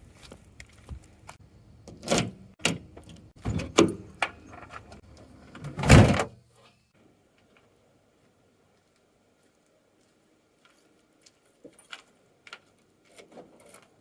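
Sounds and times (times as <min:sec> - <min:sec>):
knocks and clunks: 0:01.9 - 0:05.0
door shutting with a thud: 0:05.7 - 0:06.3.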